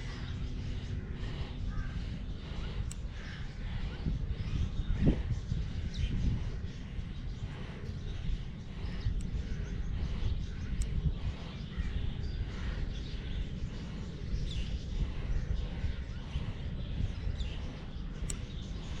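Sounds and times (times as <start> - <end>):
birds chirping: 0.0 - 19.0
steady low rumble: 0.0 - 19.0
sharp ticks: 1.6 - 3.7, 6.0 - 11.6, 17.1 - 19.0.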